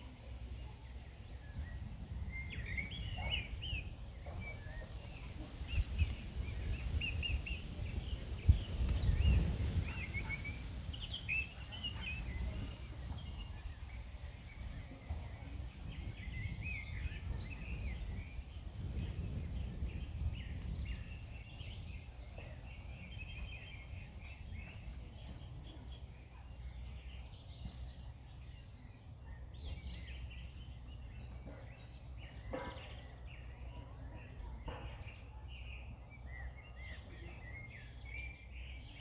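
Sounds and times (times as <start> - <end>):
songbirds singing and chirping: 0.0 - 39.0
wind rumble: 1.4 - 26.1.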